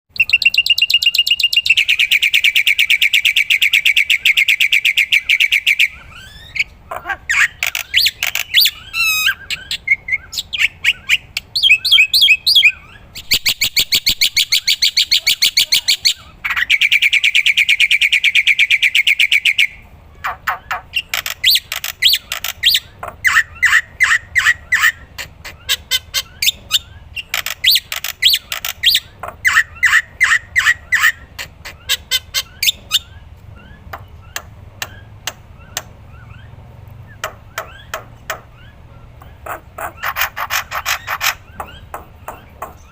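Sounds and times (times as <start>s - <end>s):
starling singing trills and whistles: 0.1s - 42.9s.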